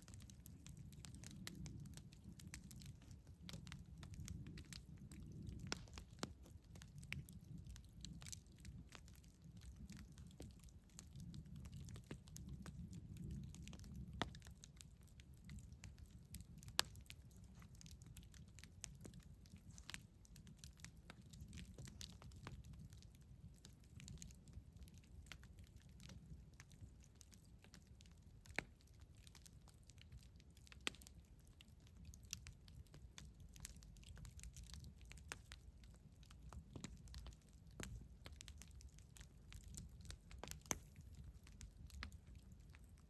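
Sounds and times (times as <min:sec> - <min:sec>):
wood fire crackling: 0:00.0 - 0:43.0.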